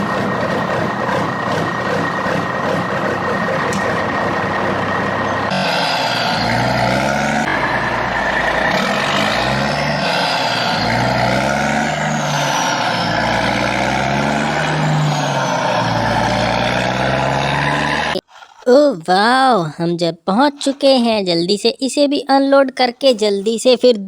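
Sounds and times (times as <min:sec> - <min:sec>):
truck engine revving: 0:00.0 - 0:18.2.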